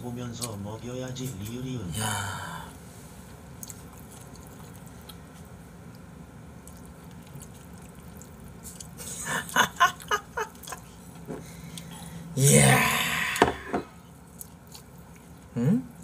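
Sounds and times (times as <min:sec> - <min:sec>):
faint chewing with small clicks: 0:00.3 - 0:01.6, 0:03.5 - 0:12.0, 0:14.1 - 0:16.0.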